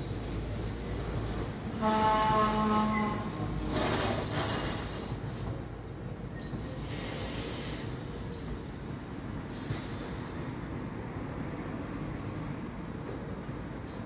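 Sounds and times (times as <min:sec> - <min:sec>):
train wheels rumbling: 0:00.0 - 0:14.0
high hiss from wheels: 0:06.7 - 0:11.2.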